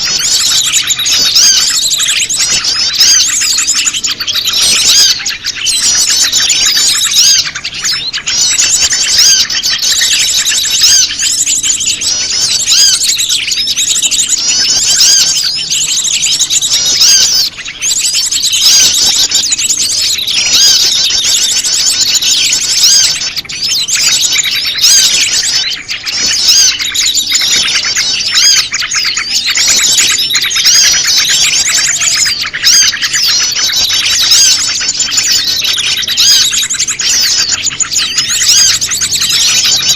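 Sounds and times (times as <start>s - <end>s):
many small birds chirping: 0.0s - 39.9s.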